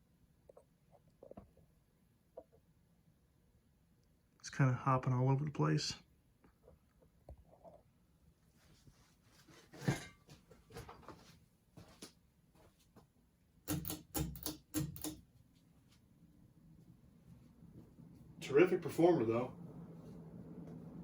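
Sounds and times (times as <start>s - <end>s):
sharp knocks and clicks: 13.6s - 15.3s
ceiling fan running and wobbling: 16.2s - 21.0s.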